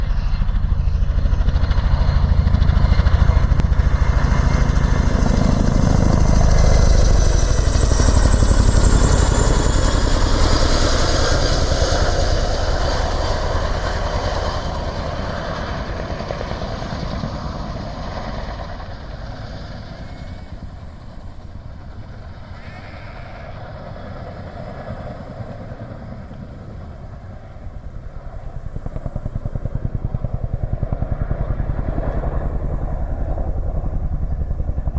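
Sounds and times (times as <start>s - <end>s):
helicopter rotor beat: 0.0s - 34.9s
turbine whine: 0.0s - 34.9s.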